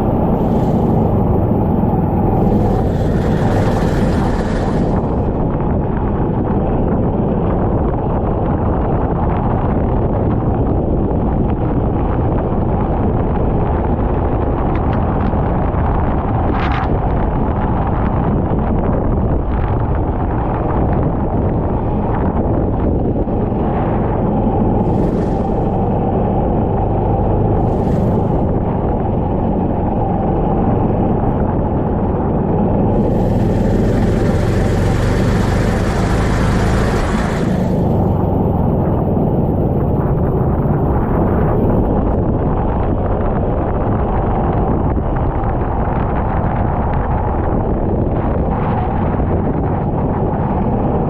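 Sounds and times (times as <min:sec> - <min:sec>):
kart engine running: 0:00.0 - 0:07.0, 0:23.2 - 0:41.9
wind buffeting microphone: 0:00.0 - 0:51.0.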